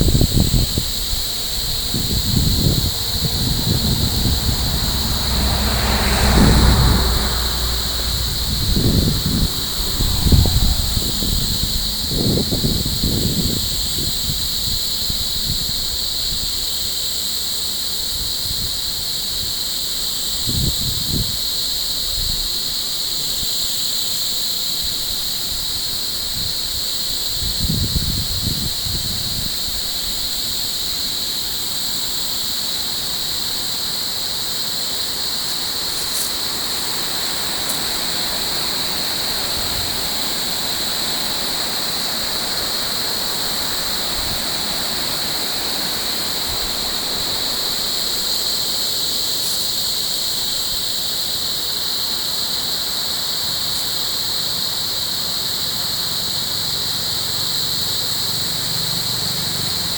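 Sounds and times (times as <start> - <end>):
running water rushing: 0.0 - 13.4, 33.6 - 49.8
high-pitched whine: 1.6 - 13.8
low hum: 1.9 - 13.0.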